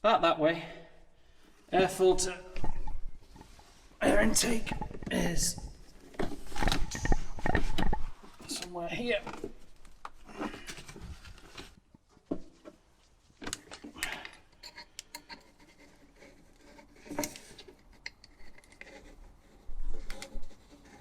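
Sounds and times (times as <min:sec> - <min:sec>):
small hardware clicking and tapping: 0:13.5 - 0:15.5.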